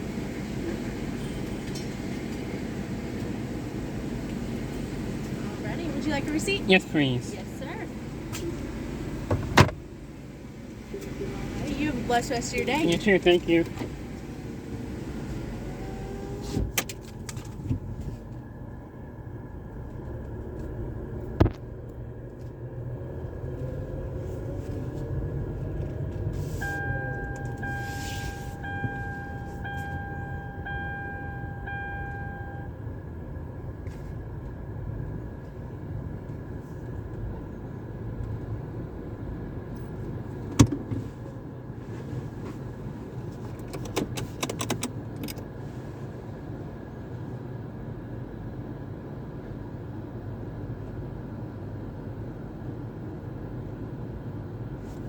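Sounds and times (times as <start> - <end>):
car idling: 0.0 - 47.3
power window whirring: 10.7 - 17.0, 25.9 - 32.6
electronic beeps: 28.6 - 32.7.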